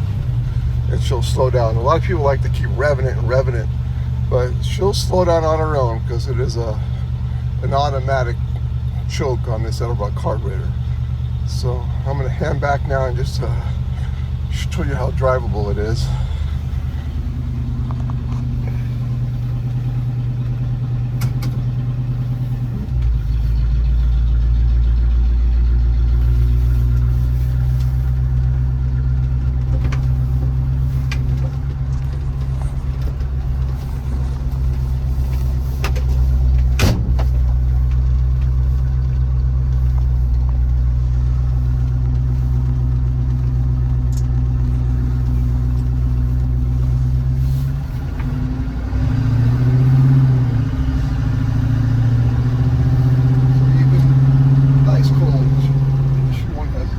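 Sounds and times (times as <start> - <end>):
engine low rumble: 0.0 - 56.9.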